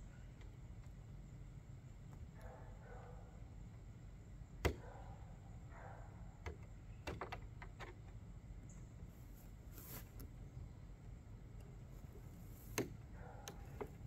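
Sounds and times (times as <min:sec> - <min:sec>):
rustling: 0:09.1 - 0:10.4.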